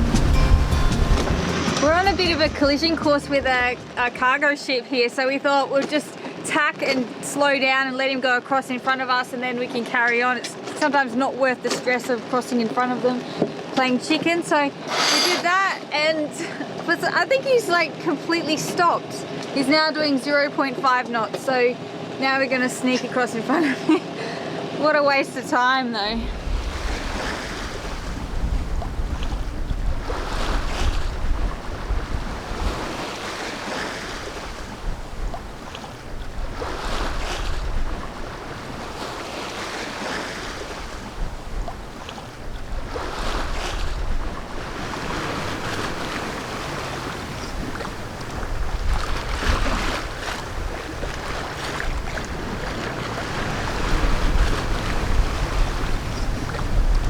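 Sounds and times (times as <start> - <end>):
water rushing past hull: 0.0 - 4.4, 26.2 - 57.0
wind buffeting microphone: 26.2 - 57.0.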